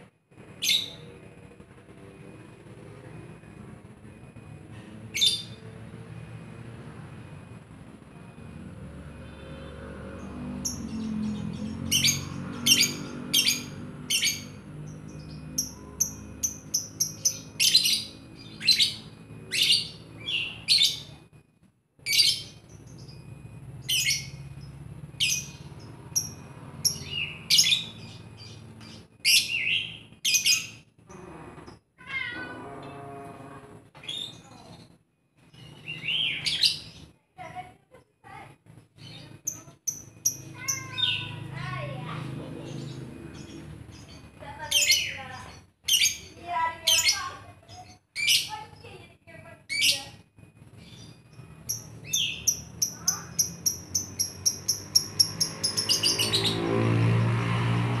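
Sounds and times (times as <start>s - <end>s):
lovebird chirping: 5.1s - 5.8s, 9.2s - 21.2s, 22.0s - 30.9s, 34.0s - 37.1s, 38.9s - 49.0s, 49.6s - 56.6s.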